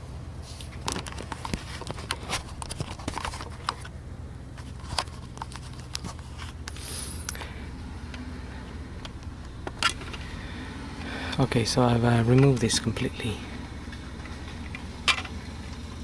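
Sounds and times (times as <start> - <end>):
steady low hum: 0.0 - 16.0
plastic dashboard parts clicking: 0.7 - 4.0, 4.6 - 7.4, 12.2 - 13.3, 13.9 - 16.0.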